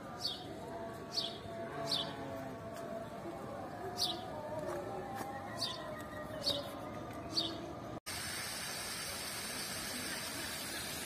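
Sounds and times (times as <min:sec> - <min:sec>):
bird chirping: 0:05.3 - 0:07.8
steady hiss: 0:08.1 - 0:11.0.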